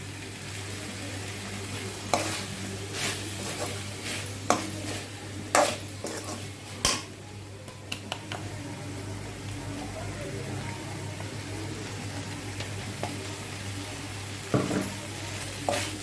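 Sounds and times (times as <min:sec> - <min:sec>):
low sizzle: 0:00.0 - 0:16.0
spatula clinking and scraping pan: 0:02.1 - 0:07.1, 0:14.6 - 0:16.0.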